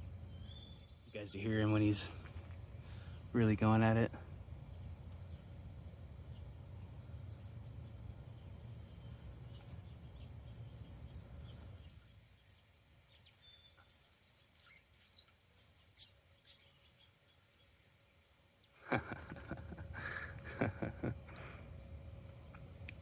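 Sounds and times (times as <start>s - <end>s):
hummingbird squeaking: 0.1s - 5.5s, 7.2s - 18.0s, 22.6s - 23.0s.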